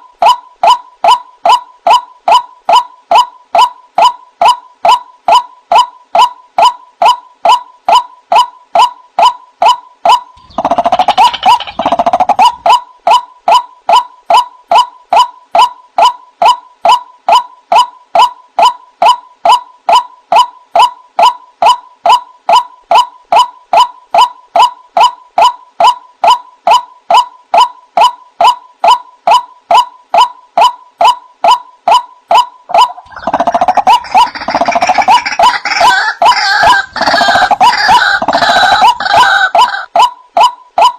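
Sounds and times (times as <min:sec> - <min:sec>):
waterhen honking calls: 0:32.7 - 0:39.9.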